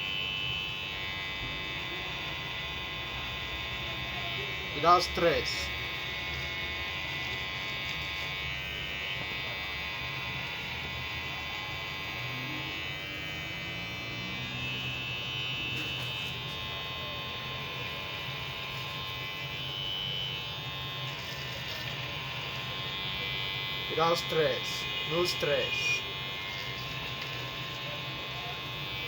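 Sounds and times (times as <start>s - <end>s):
electric hair clipper buzzing: 0.0s - 29.0s.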